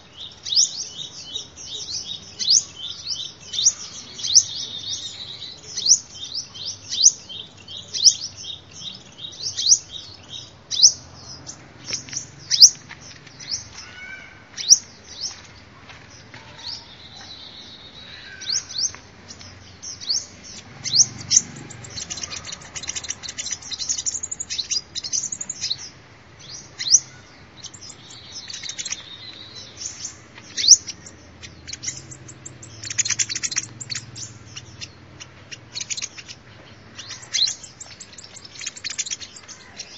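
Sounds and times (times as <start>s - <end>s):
bird chirping and trilling: 19.8s - 39.9s.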